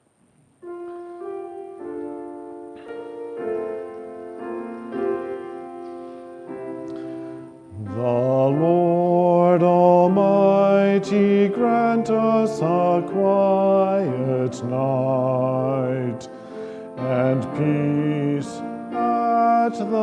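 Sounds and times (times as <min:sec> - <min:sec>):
organ playing held chords: 0:00.6 - 0:20.0.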